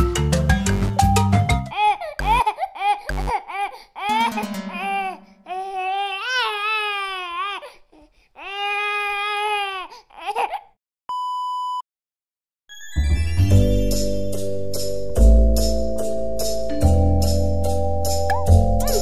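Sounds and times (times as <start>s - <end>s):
music: 0.0s - 1.7s, 4.1s - 5.1s, 12.7s - 19.0s
baby crying: 1.7s - 10.8s.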